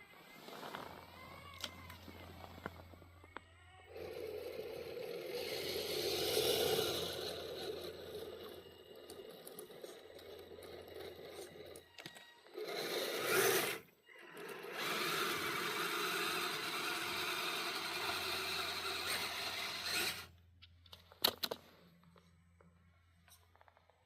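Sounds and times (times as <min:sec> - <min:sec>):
toy truck motor and gears running: 0:00.0 - 0:20.4.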